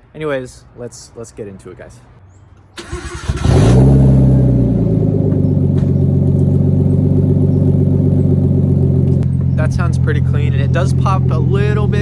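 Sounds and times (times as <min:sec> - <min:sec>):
car engine cranking and idling: 0:02.8 - 0:12.0.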